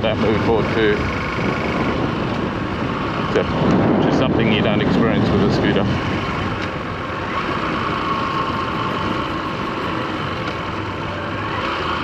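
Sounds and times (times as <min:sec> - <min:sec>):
motorcycle engine cruising: 0:00.0 - 0:12.0
road noise: 0:00.0 - 0:12.0
wind noise: 0:00.0 - 0:12.0.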